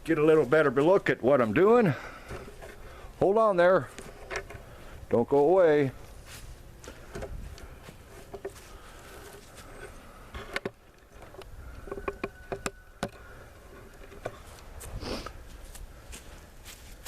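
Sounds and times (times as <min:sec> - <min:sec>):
faint steady buzz: 0:05.8 - 0:17.0.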